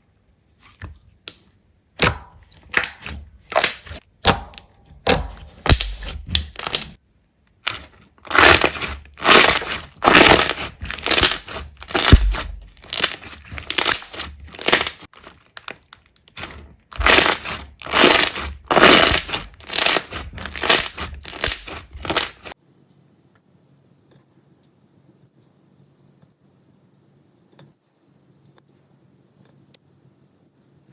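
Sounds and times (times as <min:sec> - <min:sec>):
slime crackling squishes: 0:02.0 - 0:07.0, 0:07.6 - 0:22.6.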